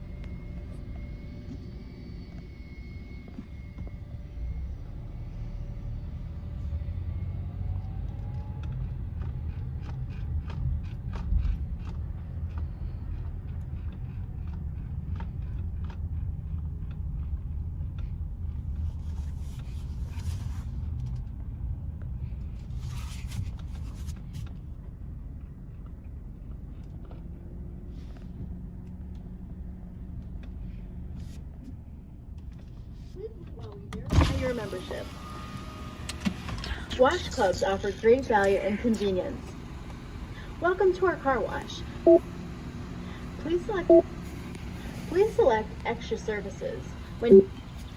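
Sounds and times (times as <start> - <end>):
car rumbling at low speed: 0.0 - 47.9.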